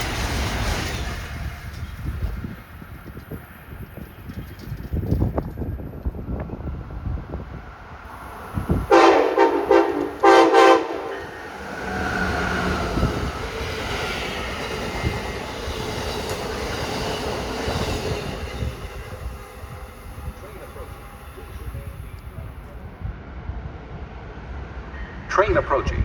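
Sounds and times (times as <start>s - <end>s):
train rumbling past: 0.0s - 25.6s
train horn blasts: 8.6s - 13.1s.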